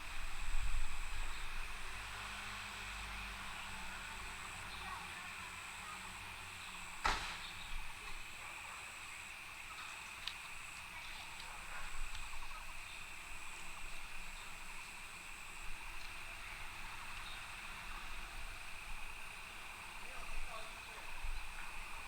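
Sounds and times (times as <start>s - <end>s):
faint clicks: 9.8s - 12.5s.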